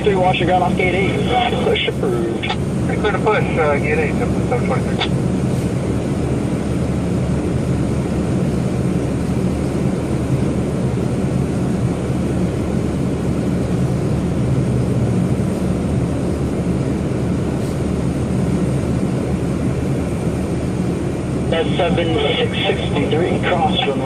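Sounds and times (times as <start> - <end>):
jet engines rumbling: 0.0 - 24.0.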